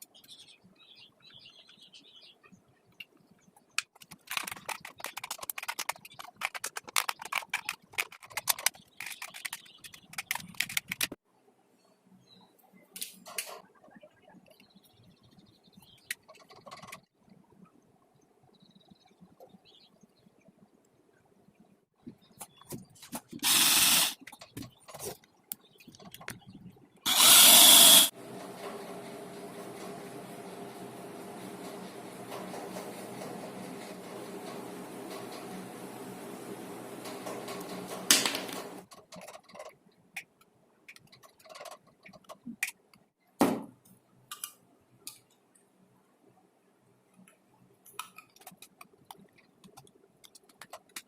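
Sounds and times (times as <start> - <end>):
clicking and scraping of hand work: 3.0 - 11.2, 37.0 - 43.1, 47.1 - 51.0
handheld power tool running: 23.4 - 24.2, 27.1 - 28.1.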